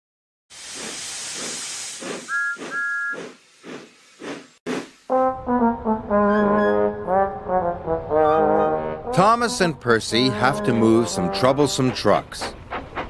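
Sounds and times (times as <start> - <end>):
steam hiss: 0.5 - 5.1
two-note whistle toots: 2.3 - 3.2
brass-led theme music: 5.1 - 12.0
steam engine chuffs: 10.8 - 13.0.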